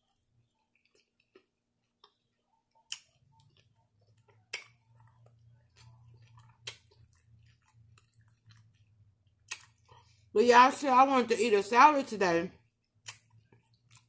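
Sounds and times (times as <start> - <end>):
chewing salad: 0.0 - 10.2, 12.6 - 14.0
wet mouth clicks and lip smacks: 2.0 - 3.5, 4.3 - 5.2, 5.8 - 8.8, 9.4 - 9.8, 13.0 - 14.0.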